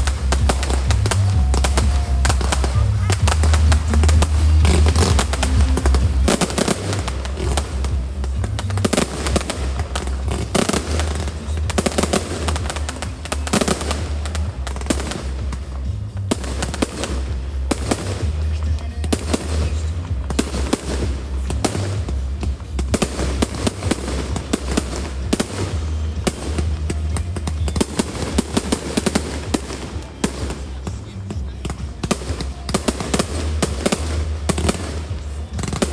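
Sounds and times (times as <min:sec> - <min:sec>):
fireworks bangs and crackling: 0:00.0 - 0:35.9
music with heavy bass: 0:00.0 - 0:35.9.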